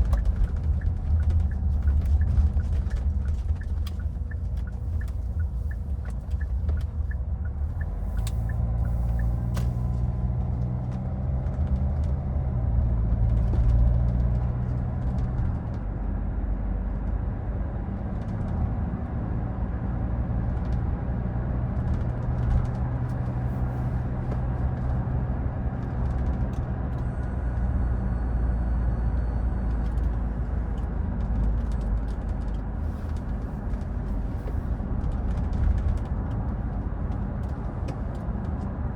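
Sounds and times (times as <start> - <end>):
light ticking: 0.0 - 9.6
car engine and road rumble: 0.0 - 38.9.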